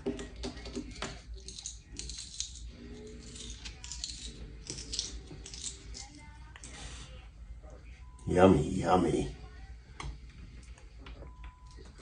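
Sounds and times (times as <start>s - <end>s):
parrot crunching pea pod: 0.5s - 6.7s.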